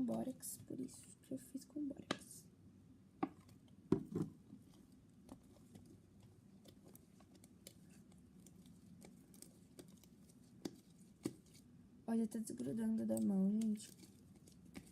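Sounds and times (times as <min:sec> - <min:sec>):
hands kneading wet slime: 0:03.3 - 0:14.9.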